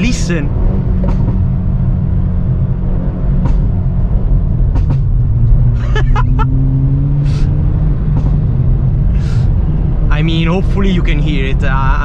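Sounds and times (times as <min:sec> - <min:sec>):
car engine droning: 0:00.0 - 0:12.0.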